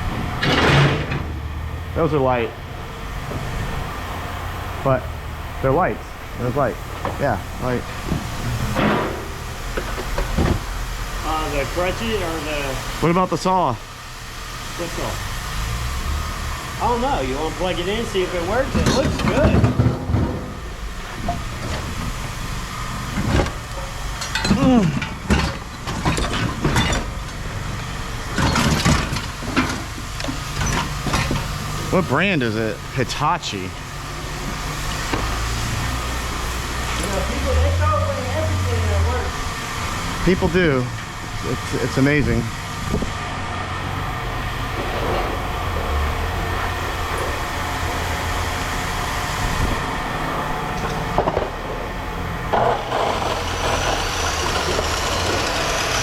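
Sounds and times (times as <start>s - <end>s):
heavy engine running: 0.0s - 56.0s
metal knocks and clanks: 18.7s - 21.9s.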